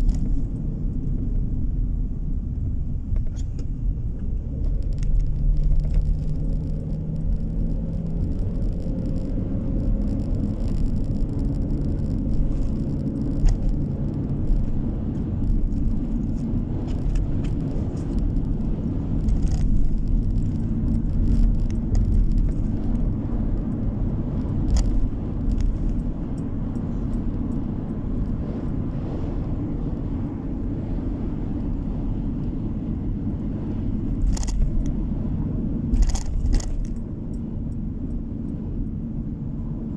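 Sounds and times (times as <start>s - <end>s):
faint clicks and rattles: 0.0s - 30.1s, 33.4s - 35.1s, 35.9s - 38.9s
car tyre and engine rumble: 0.0s - 39.9s.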